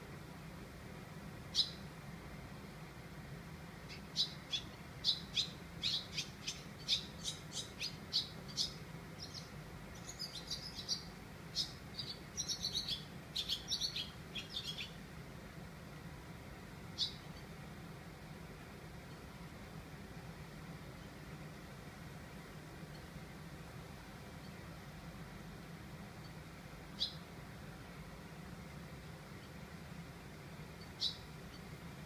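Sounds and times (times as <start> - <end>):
small birds chirping: 1.5 - 1.9, 3.8 - 15.0, 16.7 - 17.7, 19.0 - 19.6, 22.4 - 23.3, 26.0 - 27.4, 30.6 - 32.0.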